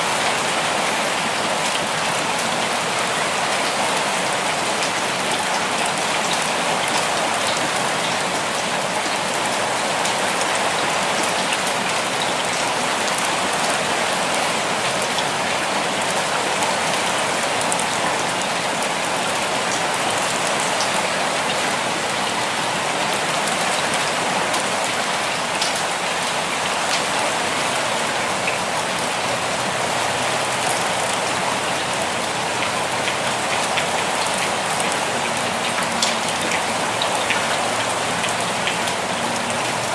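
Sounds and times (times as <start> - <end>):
steady rain hissing: 0.0 - 39.9
raindrops ticking: 29.7 - 39.9.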